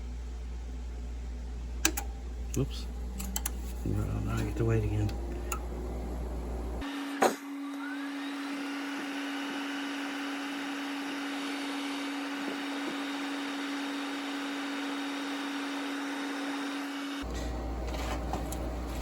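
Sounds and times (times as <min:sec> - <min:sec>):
constant hum: 0:00.0 - 0:07.4, 0:17.2 - 0:19.0
furnace motor whirring: 0:01.7 - 0:19.0.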